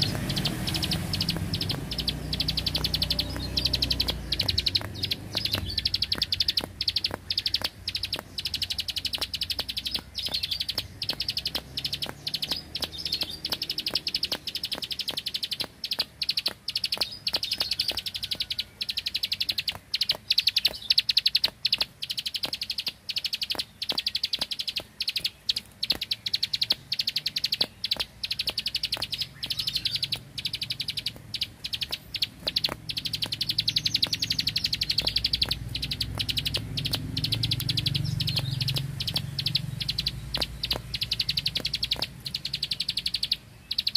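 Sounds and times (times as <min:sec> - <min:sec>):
bird rapid clicking song: 0:00.0 - 0:43.9.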